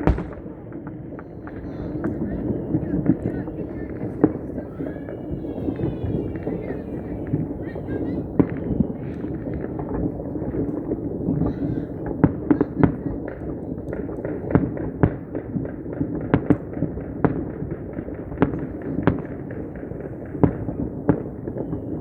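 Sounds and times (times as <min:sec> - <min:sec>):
fireworks bangs: 0:00.0 - 0:02.2.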